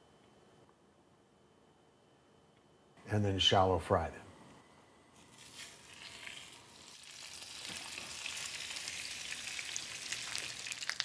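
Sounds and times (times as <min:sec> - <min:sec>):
food sizzling in hot oil: 0:05.3 - 0:11.0.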